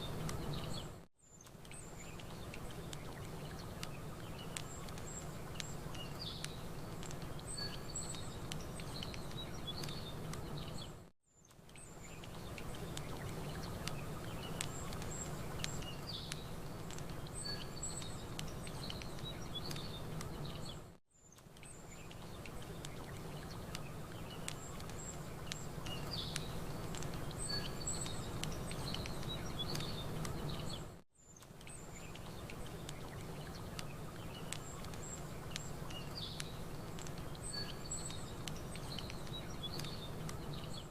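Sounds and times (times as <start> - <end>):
campfire crackling and popping: 0.0 - 10.9, 11.5 - 20.8, 21.4 - 40.9
small birds chirping: 0.0 - 40.9.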